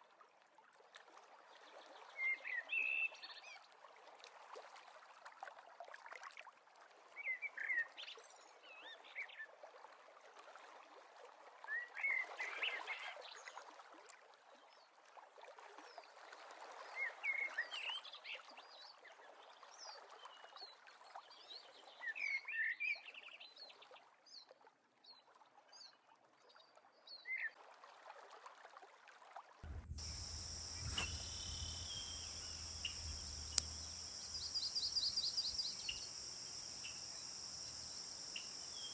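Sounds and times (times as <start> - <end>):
birds chirping: 29.6 - 38.9
low hum: 29.6 - 38.9
soft hiss: 29.6 - 38.9.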